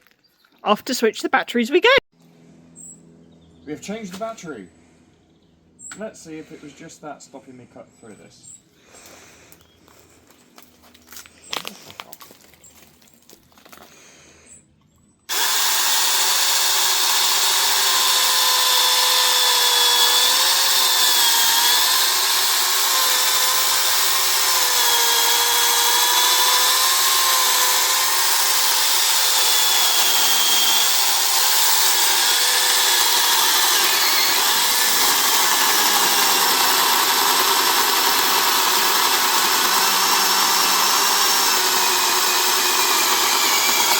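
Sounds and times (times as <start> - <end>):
mini chainsaw cutting wood: 15.3 - 43.9.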